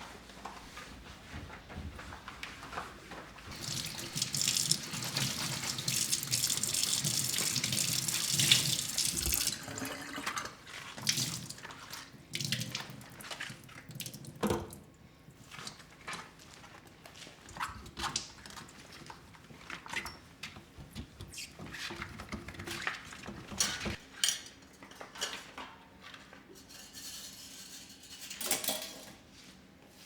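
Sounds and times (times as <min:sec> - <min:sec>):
tap running into sink: 0:03.5 - 0:10.4.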